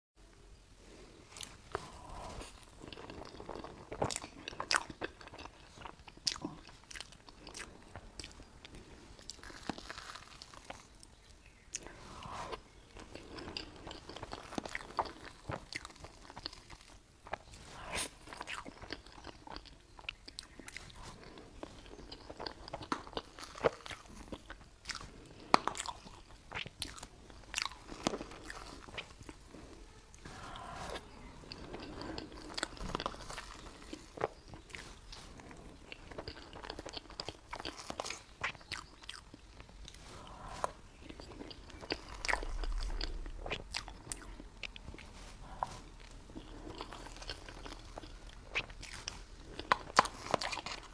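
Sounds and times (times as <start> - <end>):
biting and chewing cake: 1.4 - 50.9.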